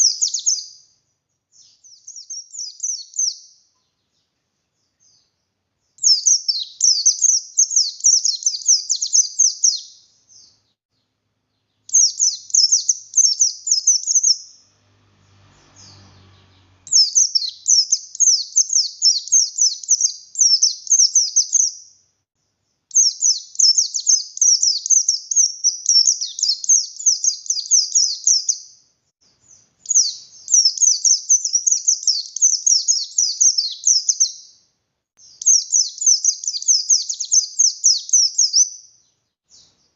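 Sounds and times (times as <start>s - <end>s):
bird chattering twitters: 11.9s - 14.6s.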